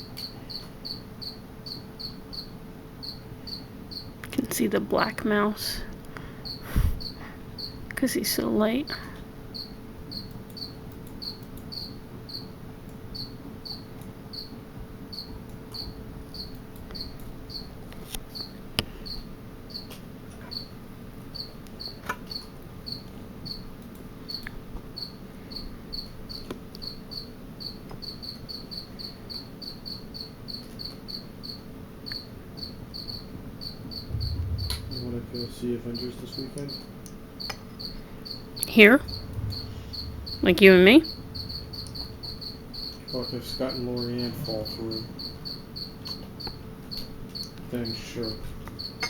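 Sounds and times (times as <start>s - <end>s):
cricket chirping: 0.0s - 49.0s
steady low hum: 33.9s - 49.0s.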